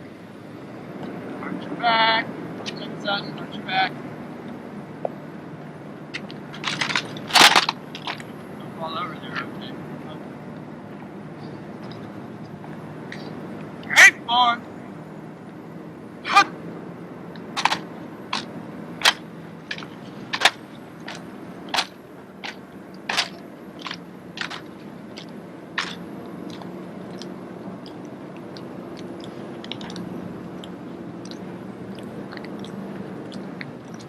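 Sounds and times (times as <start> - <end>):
drill rifles slapping and clacking: 6.2 - 8.2, 17.6 - 26.0.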